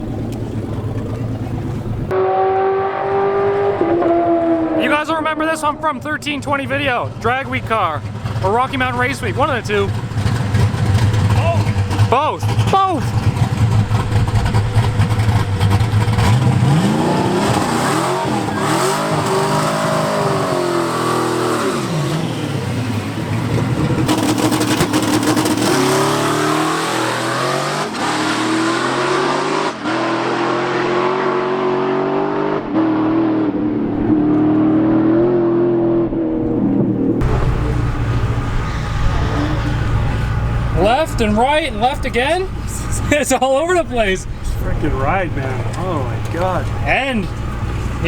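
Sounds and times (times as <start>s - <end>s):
drag racing car engine: 0.0s - 48.0s.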